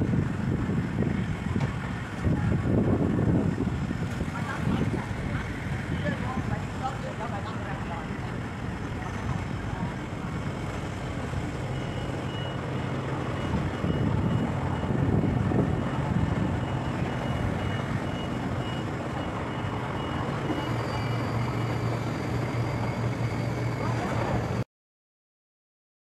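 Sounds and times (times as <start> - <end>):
heavy engine running: 0.0 - 24.6
high-pitched warning beeper: 11.5 - 24.6.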